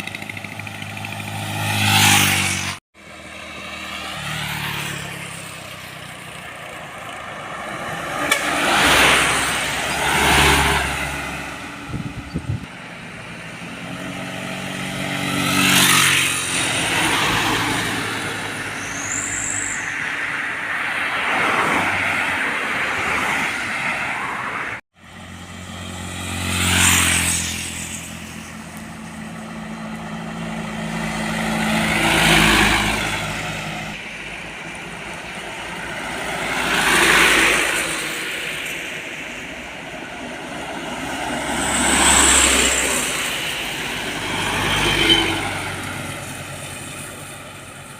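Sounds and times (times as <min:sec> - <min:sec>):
trucks passing by: 0:00.0 - 0:47.9
brief high squeal: 0:18.7 - 0:20.1.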